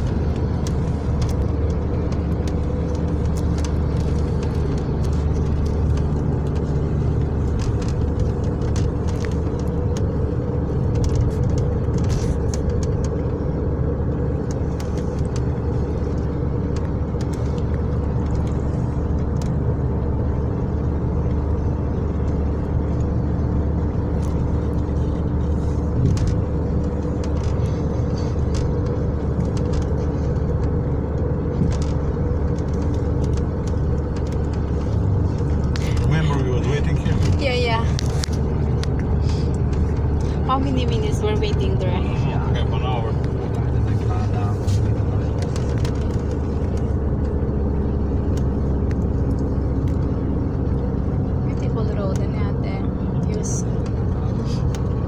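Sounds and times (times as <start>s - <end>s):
vehicle engine and road rumble: 0.0s - 55.0s.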